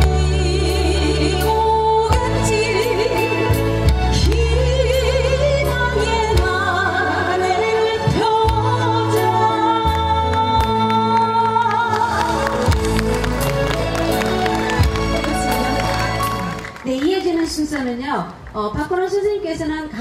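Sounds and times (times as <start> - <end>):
woman singing: 0.0 - 13.0
backing track with bass: 0.0 - 16.7.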